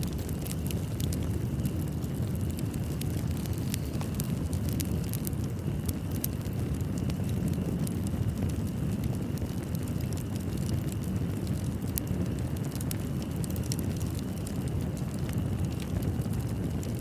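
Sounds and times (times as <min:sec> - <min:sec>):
low roar of flames: 0:00.0 - 0:17.0
wood crackling and popping: 0:00.0 - 0:17.0.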